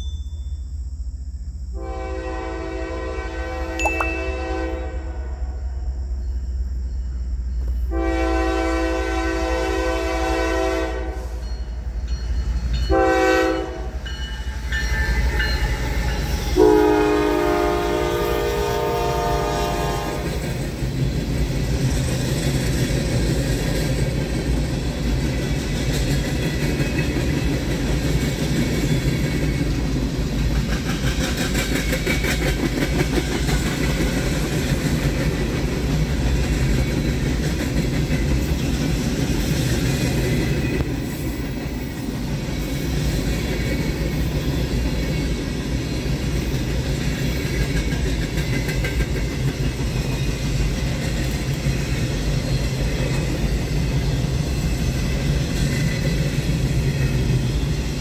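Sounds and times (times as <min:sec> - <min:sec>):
train rumbling: 0:00.0 - 0:58.0
locomotive air horn: 0:01.8 - 0:05.7, 0:07.9 - 0:11.4, 0:12.9 - 0:14.0, 0:16.6 - 0:20.4
train wheels clacking: 0:20.2 - 0:58.0.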